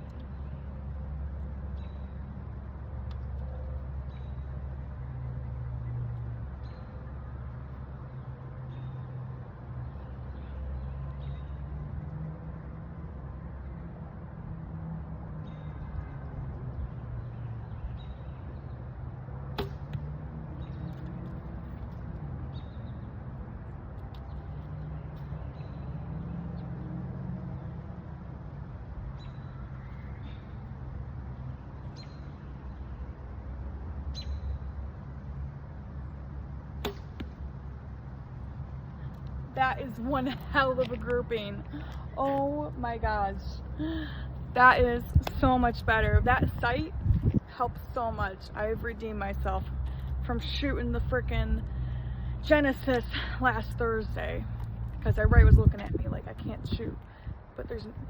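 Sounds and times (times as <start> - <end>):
arrows striking target: 19.5 - 20.0, 36.8 - 37.5
steady low rumble: 35.2 - 58.0.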